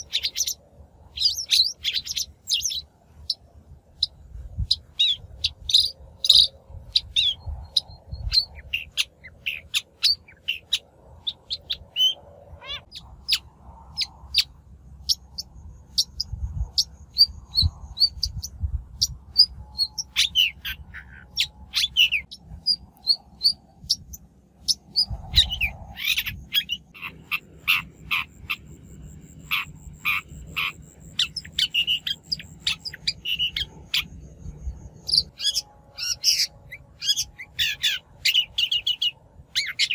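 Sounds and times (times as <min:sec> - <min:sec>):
low rumble: 0:12.2 - 0:35.8.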